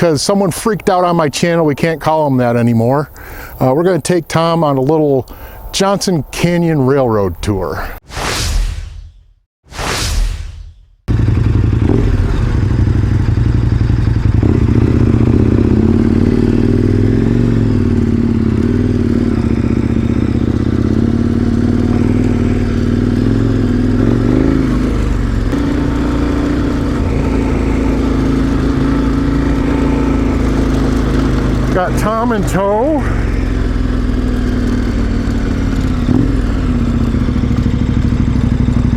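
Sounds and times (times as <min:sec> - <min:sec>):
short whoosh: 0:08.0 - 0:11.0
motorcycle engine revving: 0:11.1 - 0:38.9.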